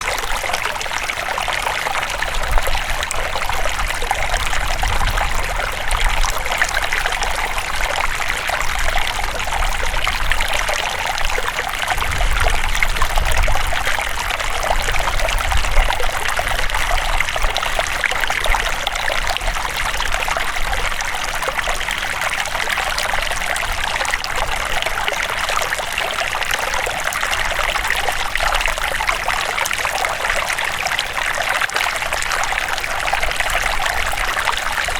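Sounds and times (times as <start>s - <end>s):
river water flowing: 0.0s - 34.9s.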